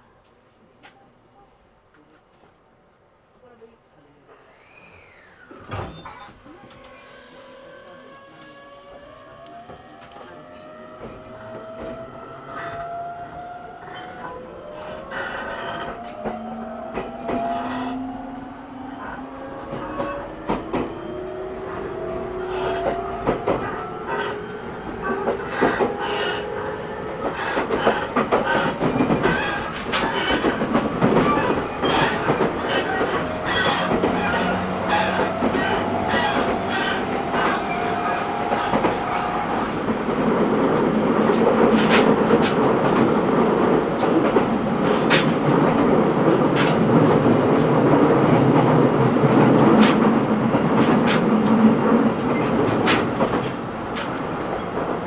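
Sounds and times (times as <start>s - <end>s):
train running rumble: 13.8s - 55.0s
wheels clacking on rail joints: 22.7s - 55.0s.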